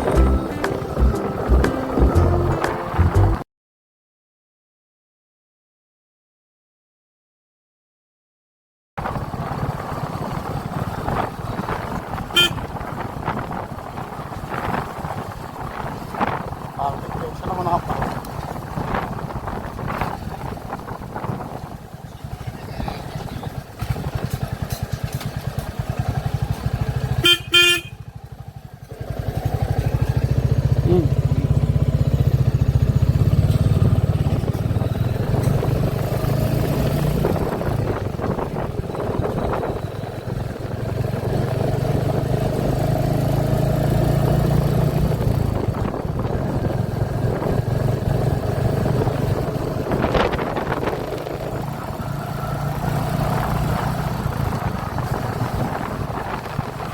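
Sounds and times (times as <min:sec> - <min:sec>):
motorcycle engine running: 0:09.0 - 0:56.9
vehicle horn blaring: 0:12.2 - 0:12.9, 0:27.1 - 0:28.1.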